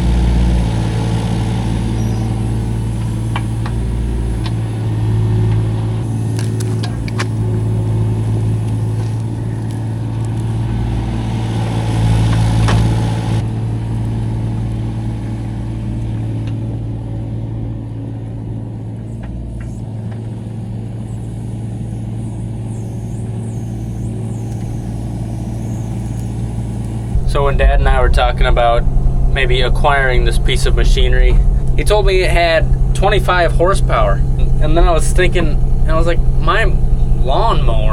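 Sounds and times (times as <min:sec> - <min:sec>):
excavator engine running: 0:00.0 - 0:37.9
hydraulic hiss: 0:20.5 - 0:28.1.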